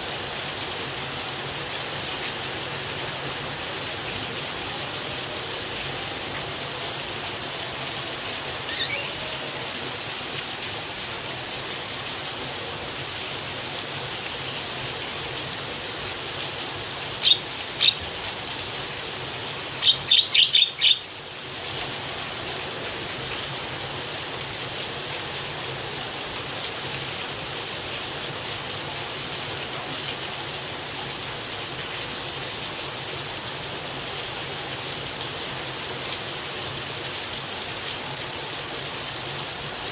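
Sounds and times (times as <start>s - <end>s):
rain hiss: 0.0s - 39.9s
myna bird calls: 8.6s - 9.6s, 17.2s - 18.2s, 19.8s - 21.1s.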